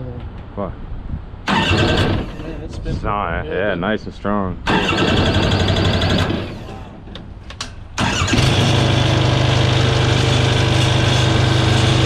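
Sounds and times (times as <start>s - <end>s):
engine cranking and starting: 1.5s - 2.6s, 4.7s - 6.9s, 7.9s - 12.0s.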